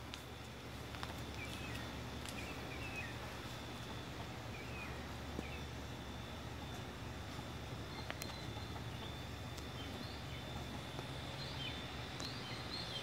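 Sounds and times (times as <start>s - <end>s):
low outdoor rumble: 0.0s - 13.0s
small bird chirping: 1.3s - 3.3s, 7.8s - 13.0s.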